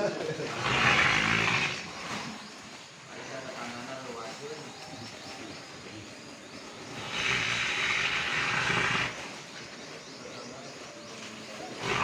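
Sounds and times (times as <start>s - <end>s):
animal making harsh rasping sound: 0.5s - 2.3s, 6.9s - 9.3s, 11.8s - 12.0s.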